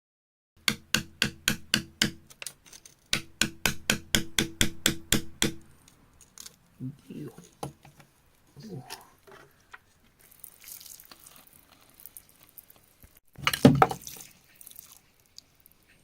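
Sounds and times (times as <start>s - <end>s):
wet scraping handling: 13.4s - 14.3s
splashing: 13.4s - 14.9s.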